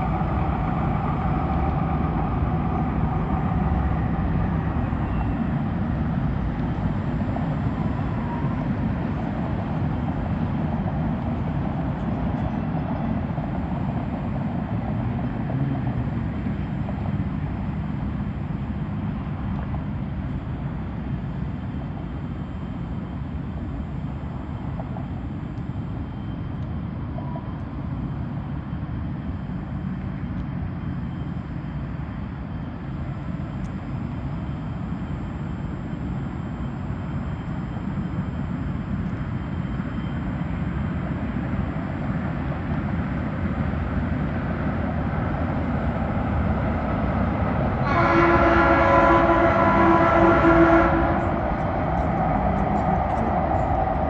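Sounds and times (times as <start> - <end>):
train rumbling: 0.0 - 54.0
loud train horn: 47.8 - 51.6.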